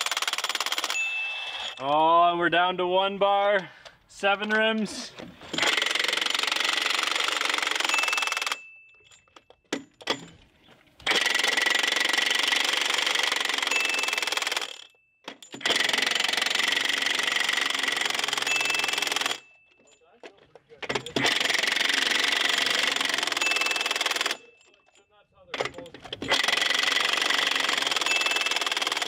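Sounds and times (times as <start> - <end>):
impact wrench hammering: 5.5 - 8.6, 25.6 - 29.0.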